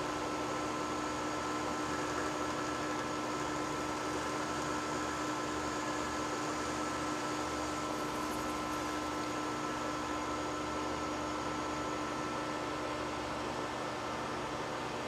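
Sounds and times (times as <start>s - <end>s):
metal lathe whine: 0.0s - 15.0s.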